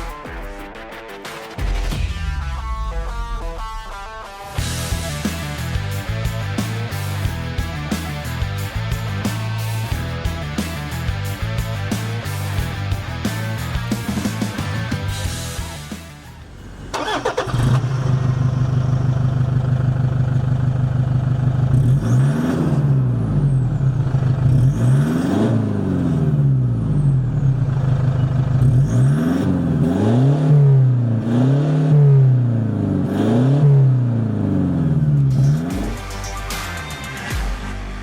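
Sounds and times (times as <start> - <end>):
diesel engine idling and revving: 4.6 - 38.0
diesel engine starting: 14.1 - 31.0.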